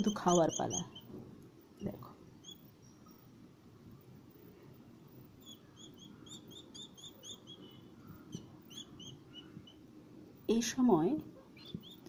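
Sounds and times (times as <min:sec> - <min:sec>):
chick begging chirps: 0:00.0 - 0:01.1, 0:01.8 - 0:03.0, 0:05.3 - 0:09.9, 0:11.5 - 0:12.0.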